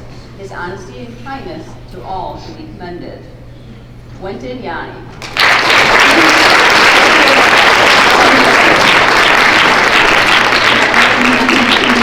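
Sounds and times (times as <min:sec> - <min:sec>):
children applauding: 0:05.2 - 0:12.0.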